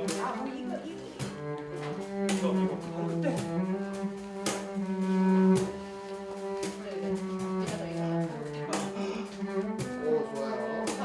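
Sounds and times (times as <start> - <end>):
music with low held notes: 0.0 - 11.0.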